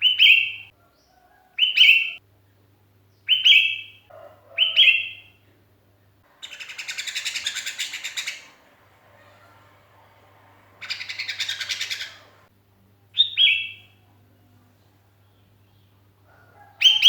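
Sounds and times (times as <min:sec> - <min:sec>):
bird rapid chatter: 0:06.3 - 0:12.5
bird whistled calls: 0:06.4 - 0:08.6, 0:10.0 - 0:12.4.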